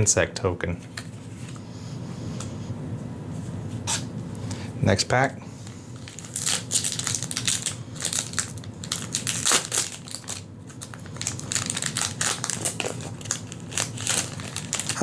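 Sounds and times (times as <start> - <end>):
foil wrapper tearing and crinkling: 5.6 - 15.0.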